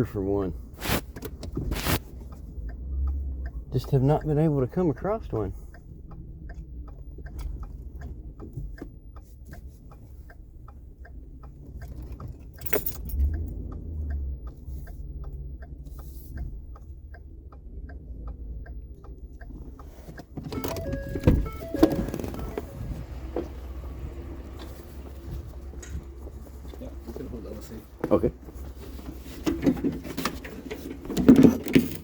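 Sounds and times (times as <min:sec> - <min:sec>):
low engine rumble: 0:00.0 - 0:32.0
steady ticking: 0:02.0 - 0:28.7.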